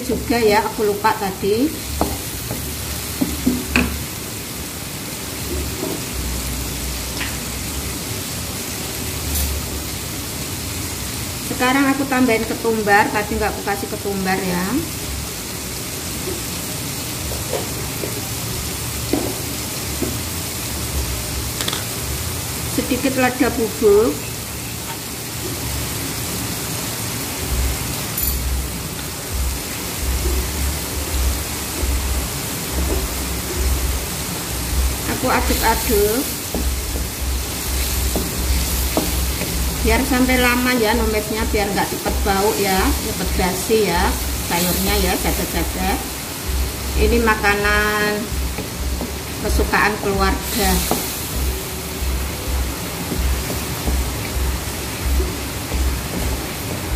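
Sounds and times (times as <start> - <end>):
spice paste sizzling in oil: 0.0 - 56.9
spatula knocking on pan: 2.0 - 4.0, 19.1 - 20.2, 32.7 - 33.7, 37.8 - 39.7, 53.0 - 54.5
heavy rain: 23.5 - 56.9.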